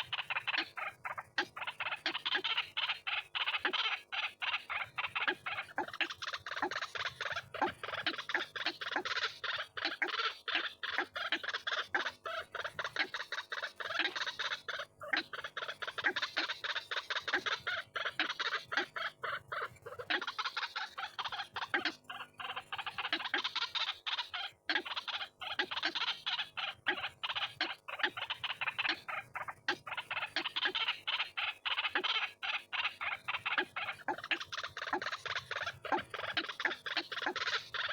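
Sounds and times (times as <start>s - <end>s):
waterhen harsh croaking calls: 0.0s - 37.9s.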